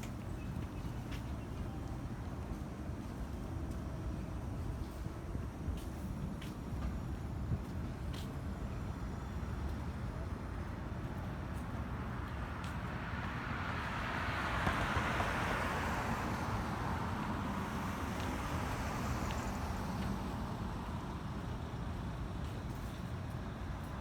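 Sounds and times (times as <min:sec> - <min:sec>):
street traffic: 0:00.0 - 0:24.0.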